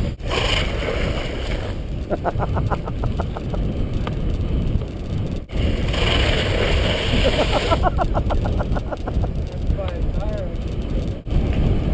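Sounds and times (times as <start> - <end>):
bike riding noise: 0.0 - 11.9
wind buffeting microphone: 0.0 - 11.9
rapid bike ticking: 1.9 - 11.8.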